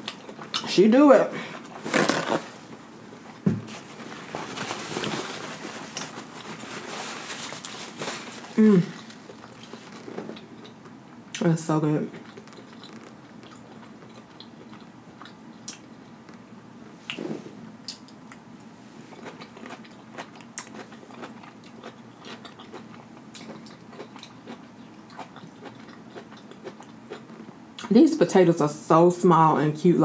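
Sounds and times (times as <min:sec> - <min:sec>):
wet mouth chewing: 0:12.1 - 0:16.4, 0:19.1 - 0:27.9.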